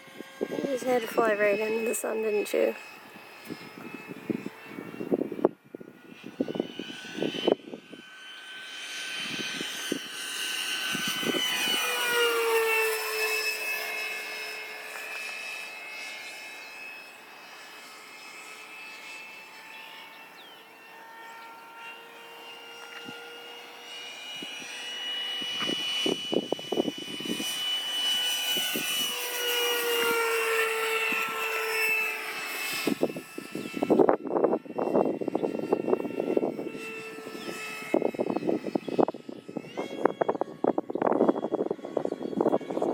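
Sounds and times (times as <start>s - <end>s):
wind buffeting microphone: 0.0s - 2.8s, 3.4s - 8.2s, 9.2s - 13.4s, 24.4s - 42.9s
model jet fan whining: 0.0s - 42.9s.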